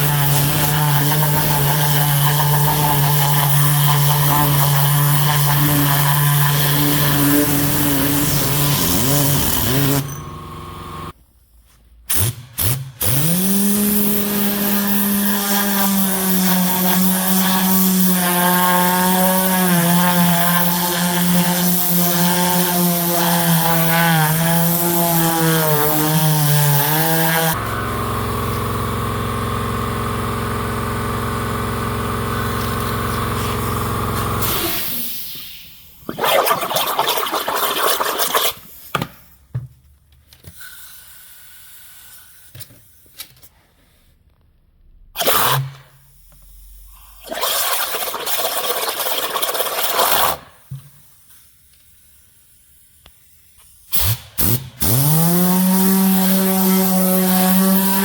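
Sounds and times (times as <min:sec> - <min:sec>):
steady motor hum: 0:09.4 - 0:11.2, 0:27.5 - 0:34.7.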